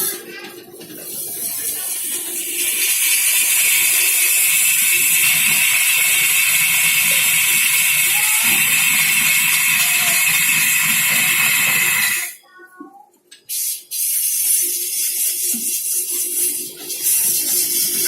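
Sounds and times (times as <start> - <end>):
loud steady hissing: 2.6 - 12.4.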